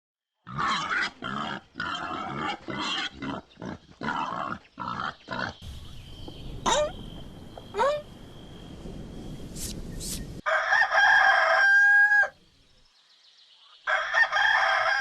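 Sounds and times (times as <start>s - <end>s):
pig calling: 0.4s - 5.6s.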